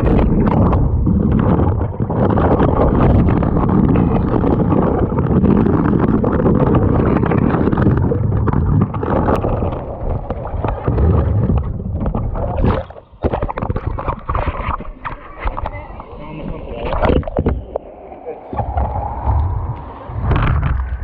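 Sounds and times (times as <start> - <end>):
wind buffeting microphone: 0.0 - 21.0
water sloshing around kayak: 8.5 - 19.6.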